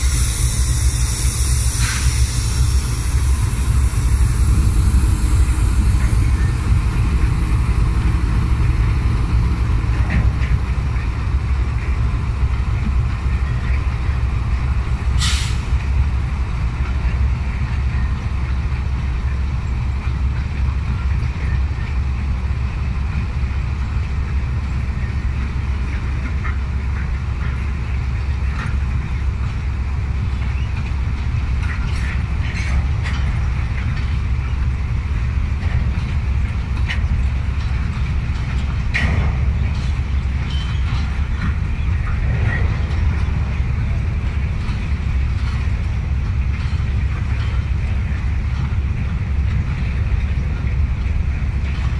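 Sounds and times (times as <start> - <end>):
short hiss: 0.0 - 4.8, 15.2 - 15.7
diesel locomotive engine rumbling: 0.0 - 51.9.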